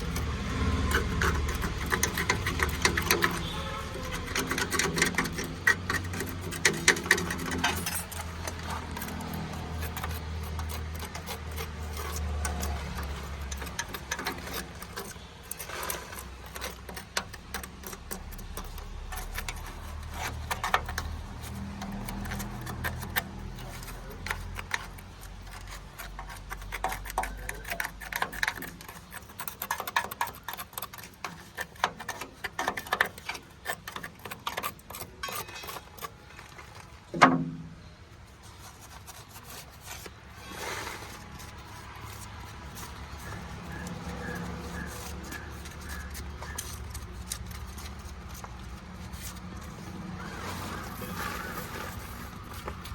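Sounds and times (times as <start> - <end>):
mechanical clicks and knocks: 0.0 - 37.9.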